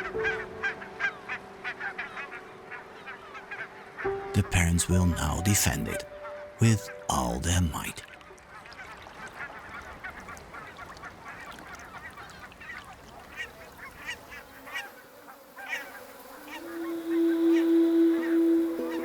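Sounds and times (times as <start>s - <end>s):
water birds calling: 0.0s - 19.0s
low musical note: 16.5s - 19.0s.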